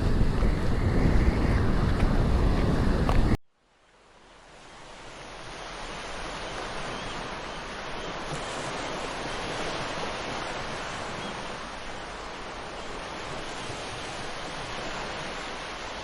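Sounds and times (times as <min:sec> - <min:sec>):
sea surf washing on beach: 0:00.0 - 0:16.0.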